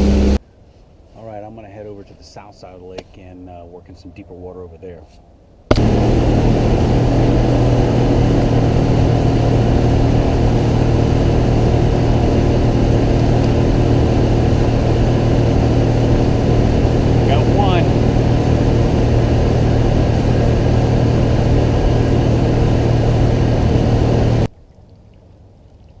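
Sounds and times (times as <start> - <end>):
boat engine running: 0.0 - 0.4, 5.7 - 24.5
rushing water noise: 6.8 - 20.2.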